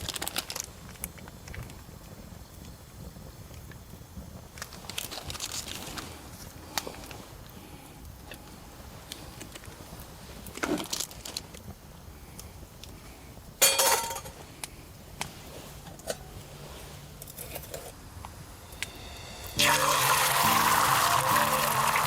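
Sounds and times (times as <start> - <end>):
background music: 18.6 - 22.0.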